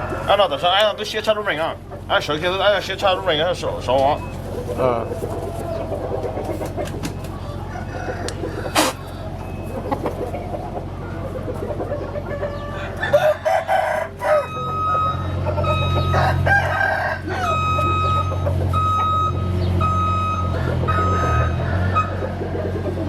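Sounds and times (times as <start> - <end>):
hens clucking: 0.0 - 23.0
roosters crowing: 0.0 - 23.0
electronic beeps: 14.3 - 16.3, 17.5 - 21.4.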